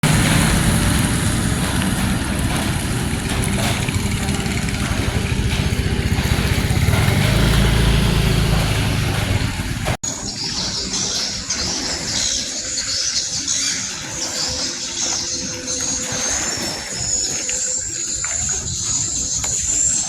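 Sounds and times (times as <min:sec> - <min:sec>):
vehicle engine droning: 0:00.0 - 0:10.0.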